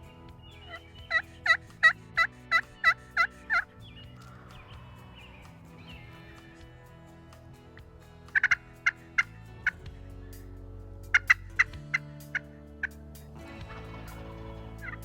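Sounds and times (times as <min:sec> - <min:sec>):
turkey yelping: 0:00.7 - 0:03.6.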